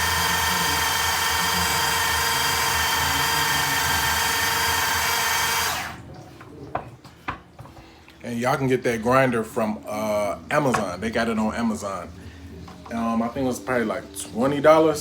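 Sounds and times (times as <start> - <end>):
electric food chopper whining: 0.0 - 6.0.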